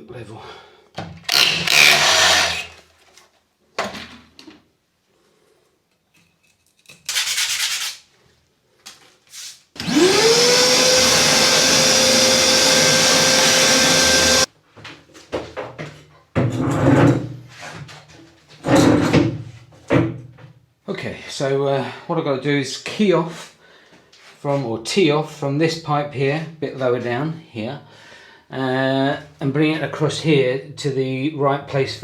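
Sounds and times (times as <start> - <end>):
power tool motor running: 1.3 - 2.8, 9.8 - 14.5
scraping and rubbing: 7.0 - 8.1.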